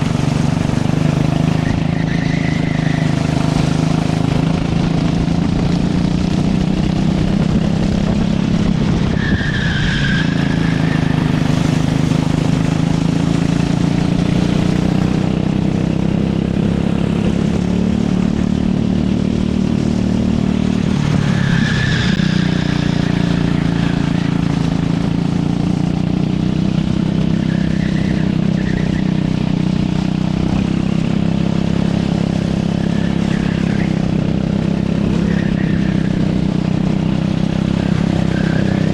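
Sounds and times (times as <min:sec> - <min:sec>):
racing kart engine: 0:00.0 - 0:38.9
tyre squeals: 0:00.8 - 0:04.4, 0:08.9 - 0:12.6, 0:20.9 - 0:25.0, 0:27.1 - 0:29.7, 0:32.6 - 0:38.9.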